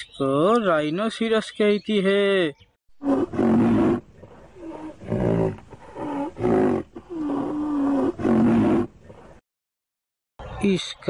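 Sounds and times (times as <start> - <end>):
wild animal rough calls: 3.0 - 9.4.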